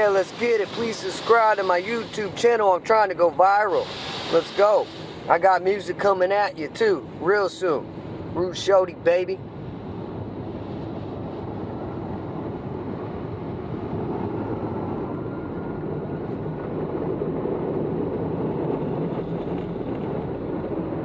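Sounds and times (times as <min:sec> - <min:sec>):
car wash machinery rushing: 0:00.0 - 0:09.2.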